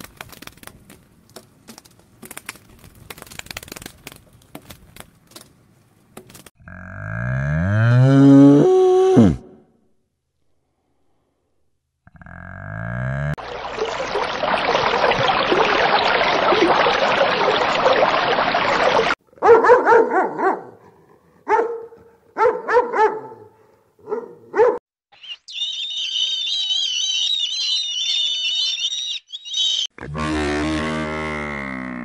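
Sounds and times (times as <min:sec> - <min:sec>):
puppy barking and yipping: 0:19.4 - 0:20.7, 0:21.5 - 0:24.8
high wavering chirping: 0:25.1 - 0:29.9.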